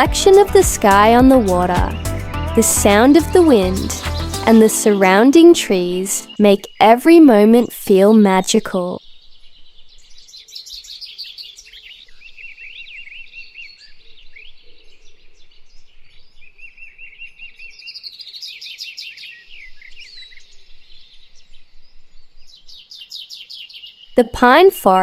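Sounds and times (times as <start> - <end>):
birds singing and chirping: 0.2 - 7.1, 8.6 - 24.3.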